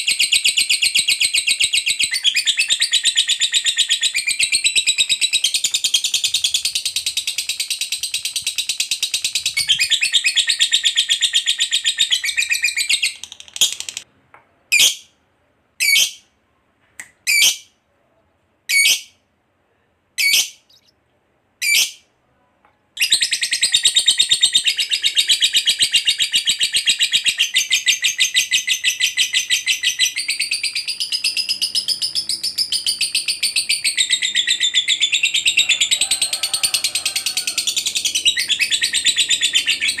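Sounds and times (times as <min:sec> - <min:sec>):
lovebird chirps: 0:00.0 - 0:14.0, 0:20.2 - 0:21.0, 0:23.0 - 0:35.9, 0:37.6 - 0:40.0.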